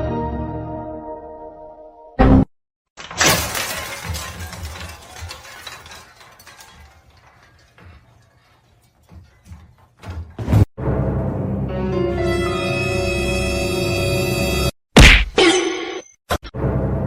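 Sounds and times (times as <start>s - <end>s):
crash of something breaking: 3.0s - 7.9s
scattered clinks and rattles: 3.0s - 10.1s.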